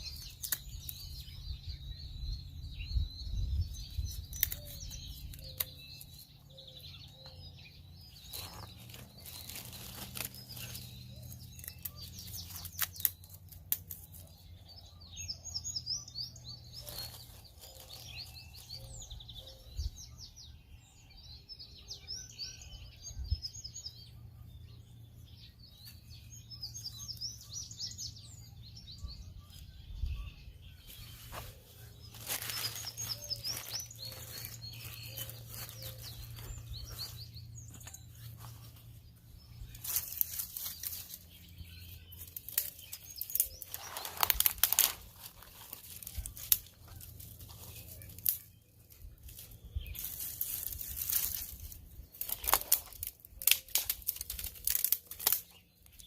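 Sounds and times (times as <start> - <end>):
small birds chirping: 0.0 - 56.0
crinkling and rustling: 8.1 - 14.2, 42.2 - 55.5.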